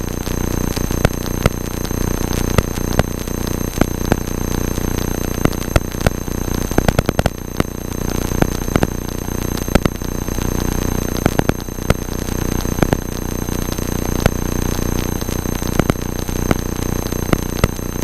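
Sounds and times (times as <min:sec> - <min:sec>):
electrical interference crackles: 0:00.0 - 0:18.0.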